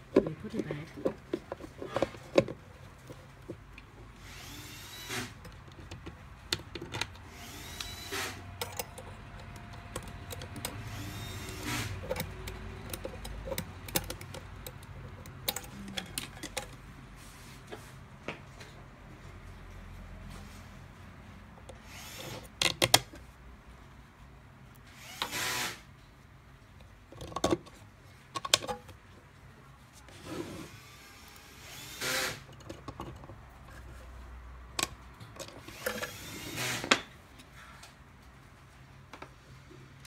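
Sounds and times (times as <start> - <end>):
power screwdriver whirring: 4.2 - 5.4, 7.3 - 8.4, 10.3 - 12.3, 21.8 - 22.5, 24.9 - 25.8, 30.5 - 32.5, 35.6 - 37.0
clicks and knocks of small parts: 5.4 - 16.8, 21.6 - 23.2, 26.8 - 29.0.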